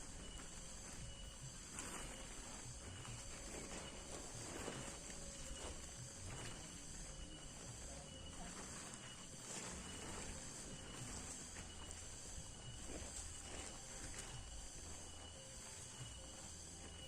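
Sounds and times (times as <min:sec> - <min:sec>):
high insect chorus: 0:00.0 - 0:17.0.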